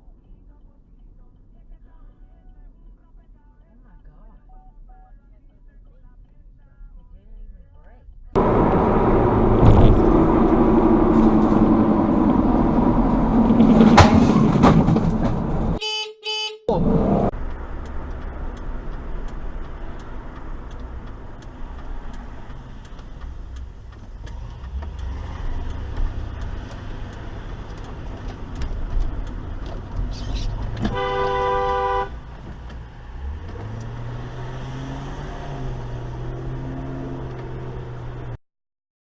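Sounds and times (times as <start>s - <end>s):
vehicle road noise: 8.4s - 15.8s, 16.7s - 38.4s
car horn honking: 15.2s - 17.3s, 30.8s - 32.2s.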